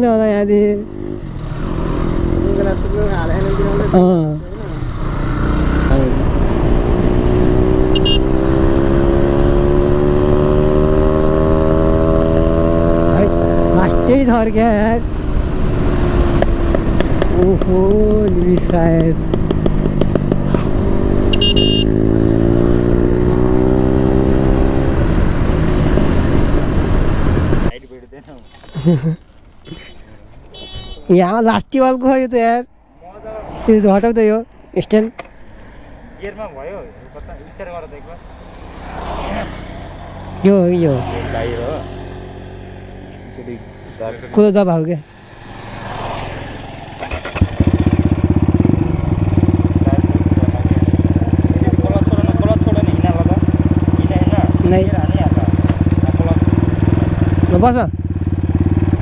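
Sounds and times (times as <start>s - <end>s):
motorcycle engine running: 0.0s - 27.8s, 28.5s - 30.9s, 37.5s - 44.4s, 45.0s - 59.0s
sharp knocks: 16.4s - 20.8s
high beep: 21.3s - 22.0s.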